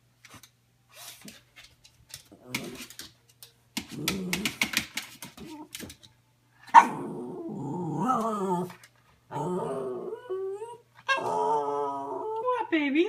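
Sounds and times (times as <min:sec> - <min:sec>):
dog barking: 0:06.7 - 0:07.0
dog whining and growling: 0:06.8 - 0:12.4.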